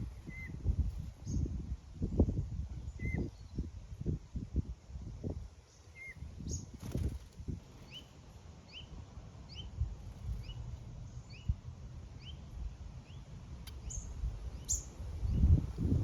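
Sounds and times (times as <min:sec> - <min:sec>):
small bird chirping: 0:05.7 - 0:07.2, 0:07.8 - 0:11.6, 0:12.2 - 0:15.6.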